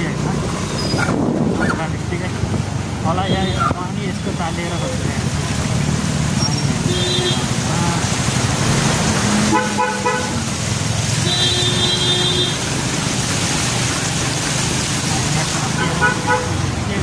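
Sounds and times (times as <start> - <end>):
vehicle horn: 6.8 - 7.6, 9.5 - 10.4, 11.2 - 12.6, 15.8 - 16.6.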